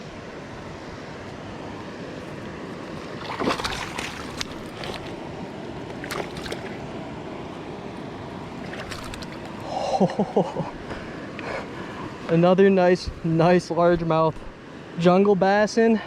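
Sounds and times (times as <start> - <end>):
river water running: 0.0 - 15.2
short water splashes: 2.2 - 6.9, 8.4 - 9.6.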